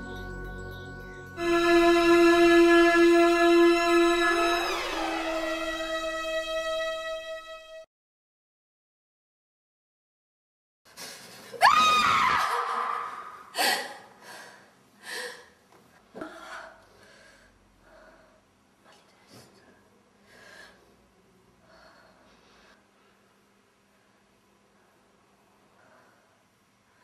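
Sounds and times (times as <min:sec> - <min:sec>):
woman breathing heavily: 0:13.6 - 0:15.6, 0:16.2 - 0:18.5, 0:20.2 - 0:21.0, 0:21.6 - 0:23.2, 0:23.9 - 0:27.0.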